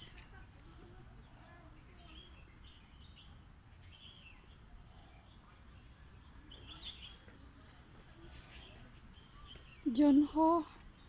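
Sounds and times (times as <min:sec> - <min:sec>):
faint birds chirping: 0:00.0 - 0:11.0
outdoor background noise: 0:00.0 - 0:11.0.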